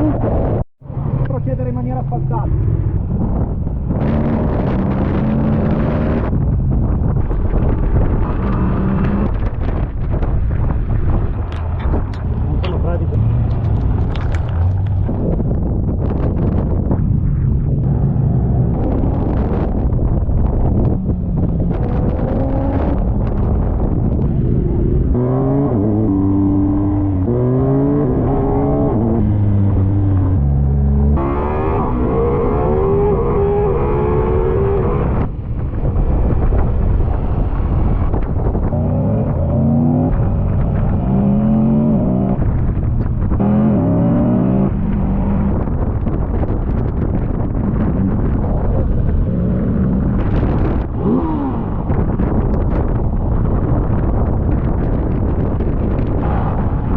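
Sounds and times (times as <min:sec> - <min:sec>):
motorcycle engine accelerating: 0:00.0 - 0:56.9
wind buffeting microphone: 0:00.0 - 0:56.9.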